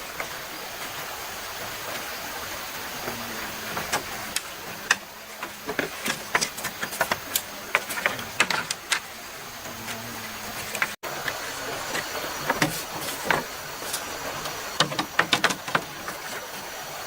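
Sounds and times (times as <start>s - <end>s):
stream running: 0.0s - 17.0s
clicks and knocks on bamboo: 3.8s - 9.1s, 12.0s - 14.1s, 14.8s - 16.6s.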